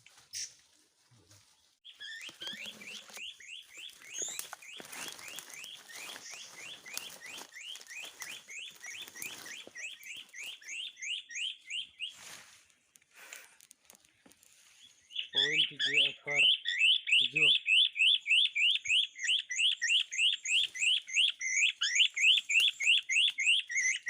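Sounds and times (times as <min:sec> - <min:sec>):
rising bird-like chirps: 0:01.8 - 0:12.3, 0:14.8 - 0:24.0
clicks and rustles: 0:12.6 - 0:14.7.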